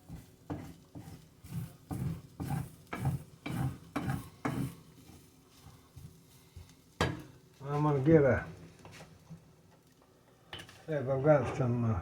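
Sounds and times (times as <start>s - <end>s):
wooden spoon scraping pan: 0.1s - 5.8s.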